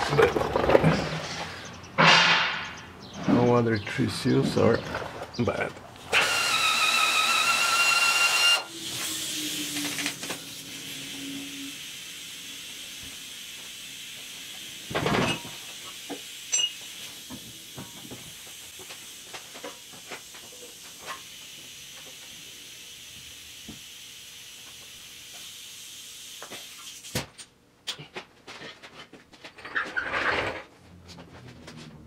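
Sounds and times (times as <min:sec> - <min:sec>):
steady hiss: 0:08.7 - 0:27.3
metal tools clinking: 0:16.5 - 0:16.8.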